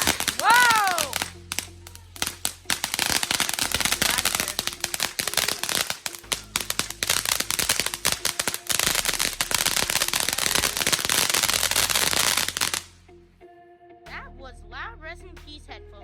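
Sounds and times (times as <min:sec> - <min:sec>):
firework crackling pops and bangs: 0:00.0 - 0:12.9.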